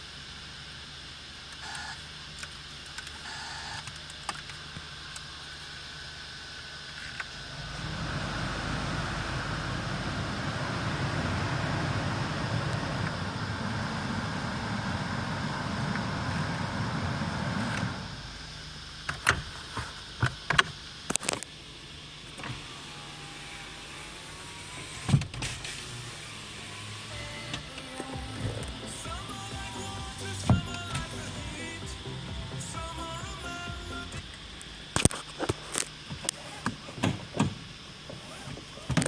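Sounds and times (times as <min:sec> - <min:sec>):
car engine running: 0:07.1 - 0:19.1, 0:26.3 - 0:35.0.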